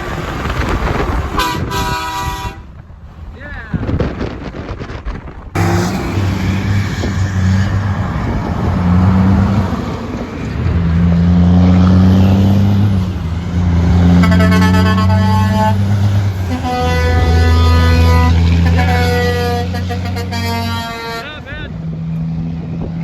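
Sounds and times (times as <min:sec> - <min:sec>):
truck diesel engine shifting gears: 0:00.0 - 0:02.0, 0:04.0 - 0:23.0
horn chord: 0:14.2 - 0:15.8, 0:16.5 - 0:21.4.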